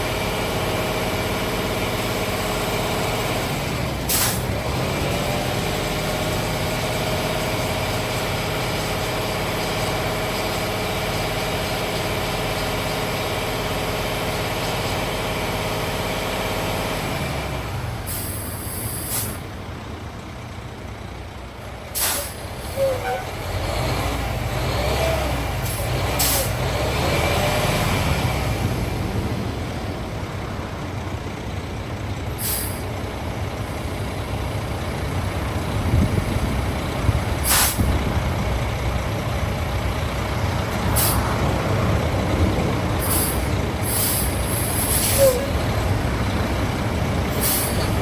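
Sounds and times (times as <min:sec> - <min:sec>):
diesel engine running: 0:00.0 - 0:48.0
air release hisses: 0:22.0 - 0:22.4, 0:37.4 - 0:37.8, 0:47.4 - 0:47.8.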